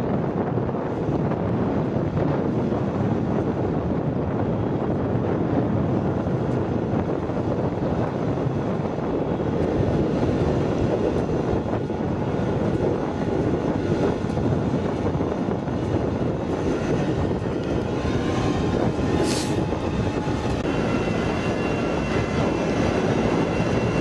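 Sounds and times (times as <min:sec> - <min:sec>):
wind noise on microphone: 0:00.0 - 0:24.0
engine running: 0:06.4 - 0:24.0.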